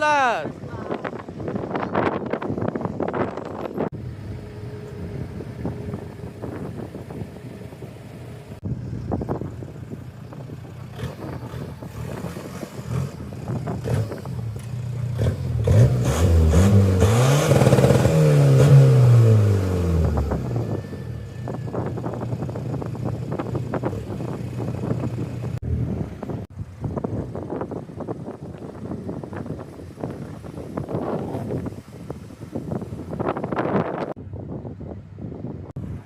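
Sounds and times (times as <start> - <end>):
car engines running: 0.0 - 36.0
car revving and accelerating: 10.8 - 21.8.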